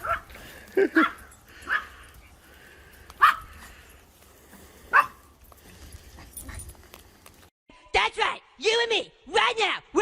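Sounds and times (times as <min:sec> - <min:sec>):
dog barking: 0:00.0 - 0:00.3, 0:01.0 - 0:02.0, 0:03.2 - 0:03.5, 0:04.9 - 0:05.2.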